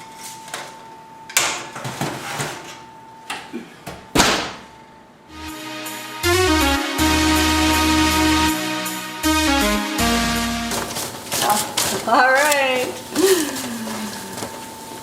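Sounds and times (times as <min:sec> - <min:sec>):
electronic background music: 0:05.3 - 0:11.0.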